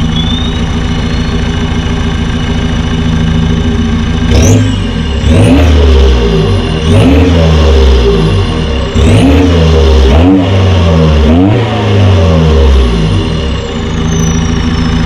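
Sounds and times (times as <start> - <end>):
turbo whistle: 0.0 - 1.6, 13.9 - 15.0
diesel engine revving: 0.0 - 15.0.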